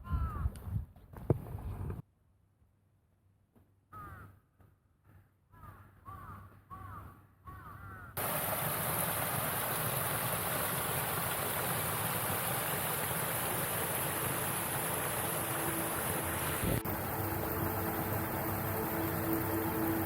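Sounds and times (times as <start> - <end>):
crow cawing: 3.9 - 4.4, 5.5 - 8.2
loud steady rushing noise: 12.6 - 20.0.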